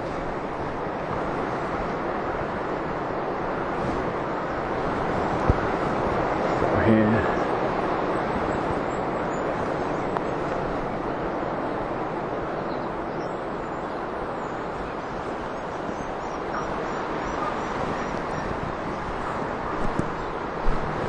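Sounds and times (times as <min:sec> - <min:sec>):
rushing outdoor noise: 0:00.0 - 0:21.0
small birds chirping: 0:12.6 - 0:20.5.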